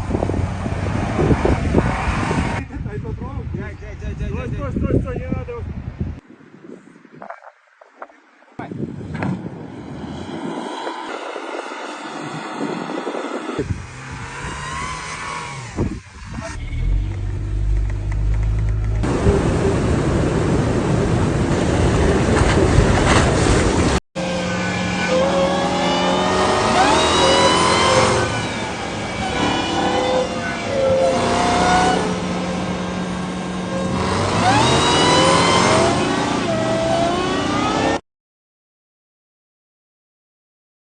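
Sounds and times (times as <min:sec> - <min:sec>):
off-road vehicle engine revving: 0:11.6 - 0:21.3, 0:21.9 - 0:38.0.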